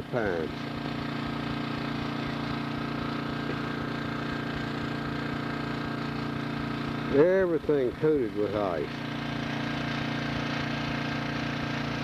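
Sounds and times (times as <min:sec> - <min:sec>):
portable generator engine running: 0:00.0 - 0:12.0.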